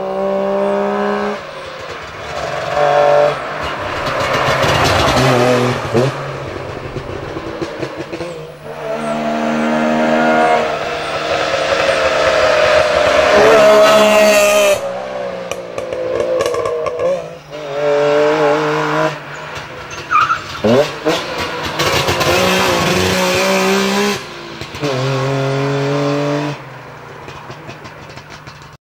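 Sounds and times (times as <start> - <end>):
two-stroke rally car engines revving: 0.0 - 28.8.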